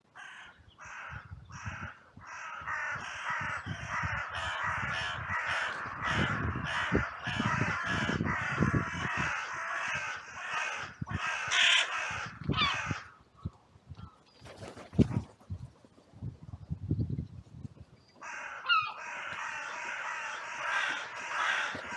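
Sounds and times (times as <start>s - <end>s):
crows cawing: 0.1s - 13.2s, 18.2s - 21.9s.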